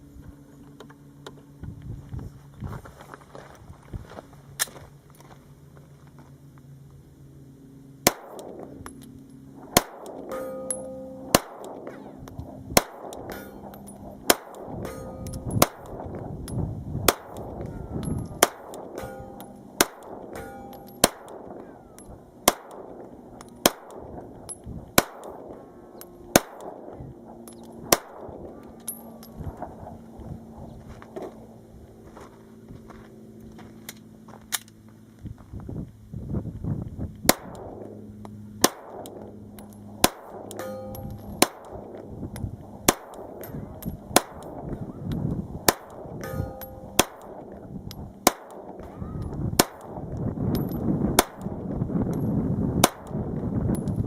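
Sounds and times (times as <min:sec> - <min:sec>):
pistol shots: 0:08.0 - 0:08.9, 0:09.6 - 0:16.2, 0:17.1 - 0:24.3, 0:25.0 - 0:25.6, 0:26.3 - 0:29.2, 0:37.3 - 0:37.8, 0:38.6 - 0:39.3, 0:39.9 - 0:42.1, 0:42.8 - 0:44.8, 0:45.7 - 0:48.9, 0:49.6 - 0:51.6, 0:52.8 - 0:53.2.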